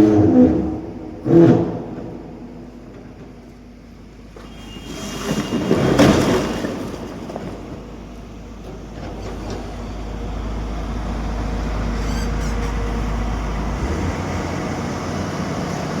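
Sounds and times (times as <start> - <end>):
excavator diesel engine rumbling: 0.0 - 16.0.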